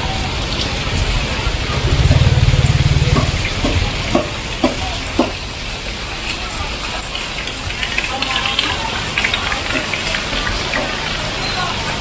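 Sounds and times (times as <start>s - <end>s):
heavy rain falling: 0.0s - 12.0s
water running on street: 0.0s - 12.0s
low pulsing rumble: 1.5s - 4.2s
short knocks: 1.9s - 5.4s.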